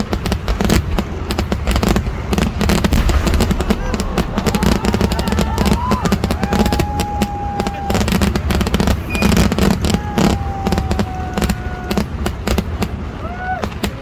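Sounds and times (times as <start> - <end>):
firecracker bangs crackling: 0.0 - 14.0
deep rumble: 0.8 - 9.1
high whistling tone: 9.1 - 9.5.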